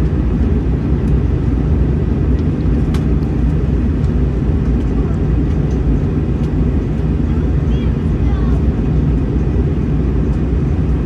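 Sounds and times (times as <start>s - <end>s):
airplane cabin engine drone: 0.0s - 11.0s.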